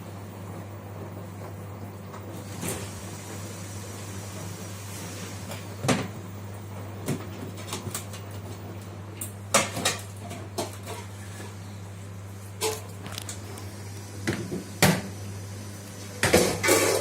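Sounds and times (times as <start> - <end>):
washing machine humming: 0.0 - 17.0
washing machine knocks and clunks: 5.8 - 6.2, 14.2 - 15.2.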